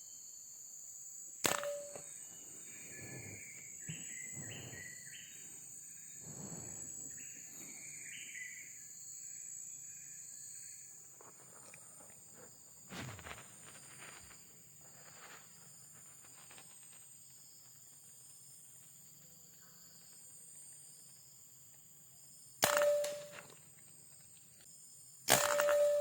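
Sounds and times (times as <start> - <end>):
faint rustles: 2.2 - 8.0.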